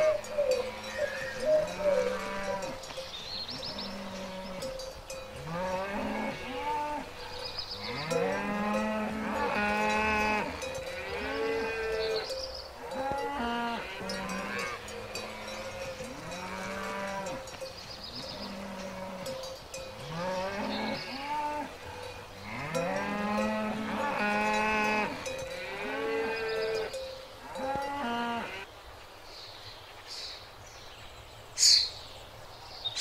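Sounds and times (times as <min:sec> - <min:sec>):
cattle mooing: 0:00.0 - 0:02.8, 0:05.4 - 0:17.6, 0:18.2 - 0:19.4, 0:20.0 - 0:28.6.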